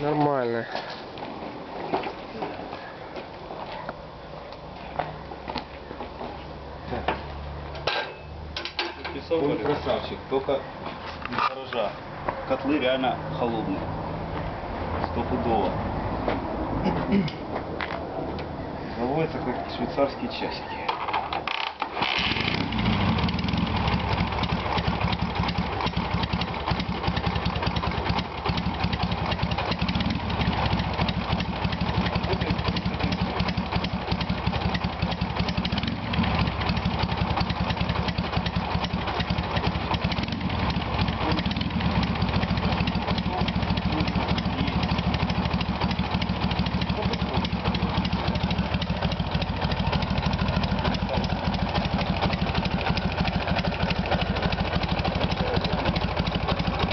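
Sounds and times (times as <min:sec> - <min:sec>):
motorcycle engine idling: 0:20.0 - 0:56.9.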